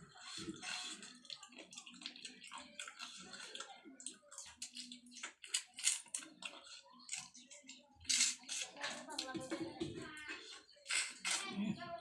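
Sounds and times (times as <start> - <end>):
person chewing: 0.1 - 8.7.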